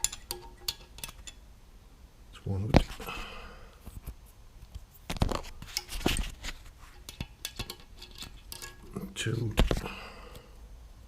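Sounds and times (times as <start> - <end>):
metallic clicks of small parts and tools: 7.0 - 8.9.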